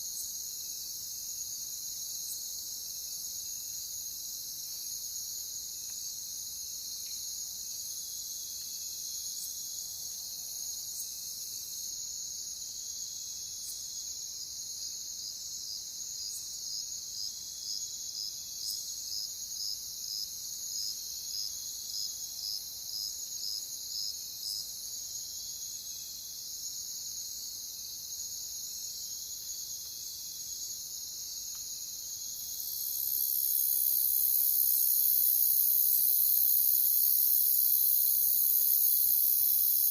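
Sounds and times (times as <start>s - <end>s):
crickets chirring: 17.7s - 39.9s.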